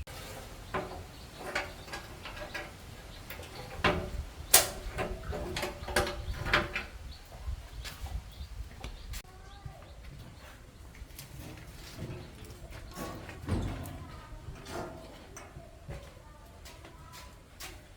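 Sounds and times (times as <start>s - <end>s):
metal tools clicking and knocking: 0.7s - 6.9s.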